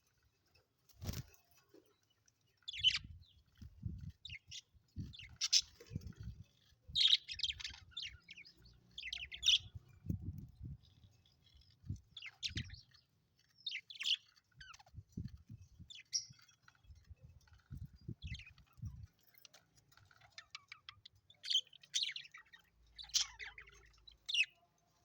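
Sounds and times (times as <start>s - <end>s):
budgerigars chirping: 2.7s - 3.1s, 4.2s - 9.8s, 20.2s - 24.6s.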